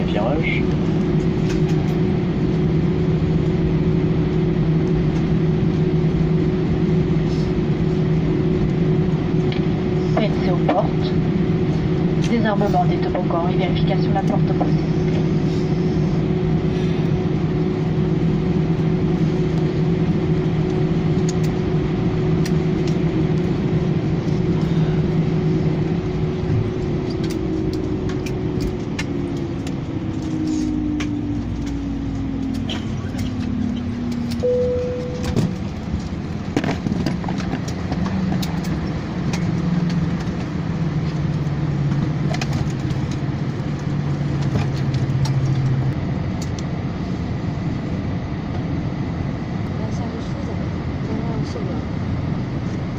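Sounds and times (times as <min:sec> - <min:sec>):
jet engines winding down: 0:00.0 - 0:52.9
low steady hum: 0:00.0 - 0:52.9
cabin chime: 0:34.4 - 0:35.4.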